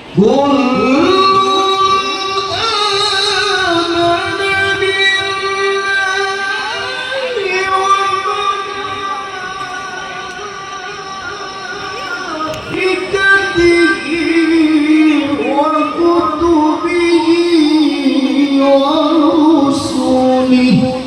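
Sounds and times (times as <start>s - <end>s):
man chanting melodic recitation: 0.0s - 21.0s.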